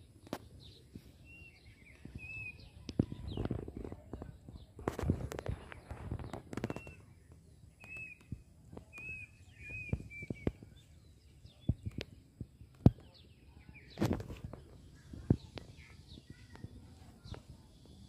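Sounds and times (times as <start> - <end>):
birds chirping: 0.0 - 18.0
brief rustle: 13.9 - 14.8.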